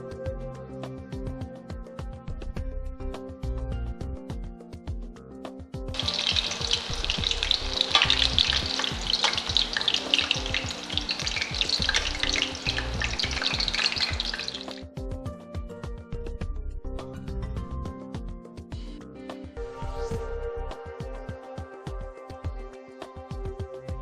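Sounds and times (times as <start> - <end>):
background music: 0.0 - 24.0
chicken frying in hot oil: 6.0 - 14.9.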